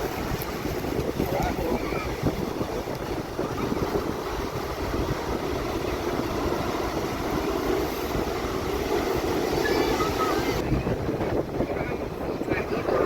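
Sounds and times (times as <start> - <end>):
aircraft engine rumble: 0.0 - 13.0.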